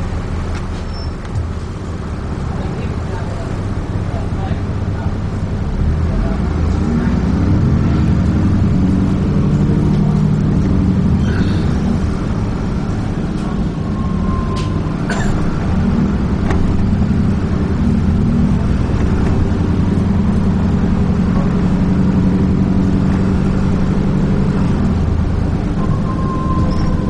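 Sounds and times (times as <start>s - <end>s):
bus diesel engine running: 0.0s - 27.0s.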